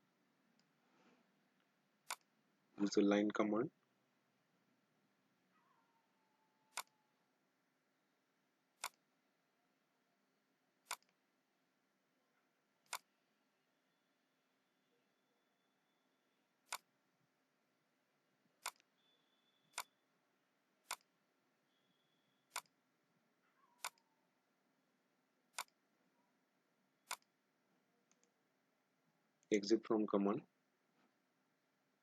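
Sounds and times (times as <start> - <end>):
computer mouse clicking: 2.0 - 2.3, 6.7 - 7.0, 8.8 - 9.0, 10.8 - 11.2, 12.8 - 13.1, 16.7 - 16.9, 18.6 - 19.0, 19.7 - 20.0, 20.8 - 21.1, 22.5 - 22.8, 23.8 - 24.0, 25.5 - 25.8, 27.0 - 27.3, 28.1 - 28.4.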